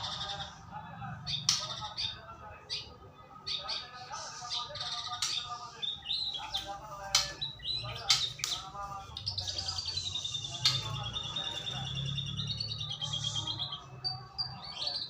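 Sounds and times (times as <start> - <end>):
rapid bird trill: 1.2 - 15.0.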